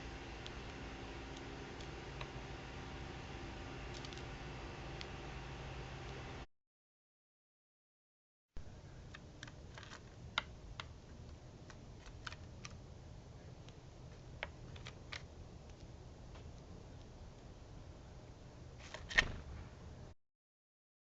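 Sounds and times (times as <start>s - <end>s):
birds pecking at seed: 0.0s - 2.6s
faint low hum: 0.0s - 6.5s, 8.6s - 20.2s.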